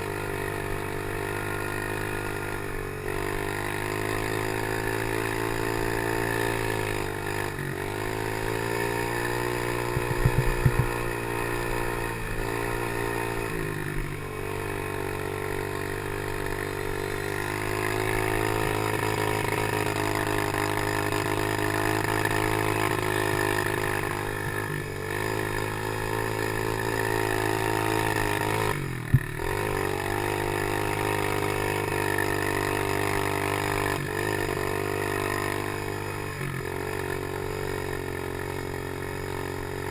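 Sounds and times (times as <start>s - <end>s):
pit bike engine running: 0.0s - 39.9s
rattling knocks: 9.9s - 10.9s.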